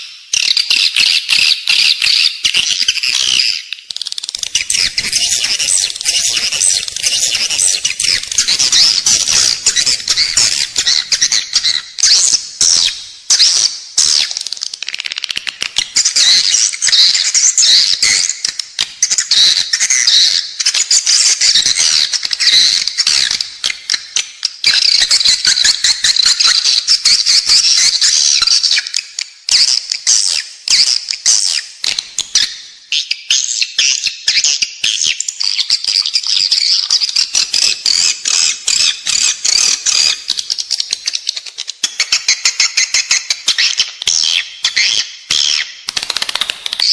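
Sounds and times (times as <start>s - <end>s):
swiftlet chirps and twitters: 4.4s - 14.3s.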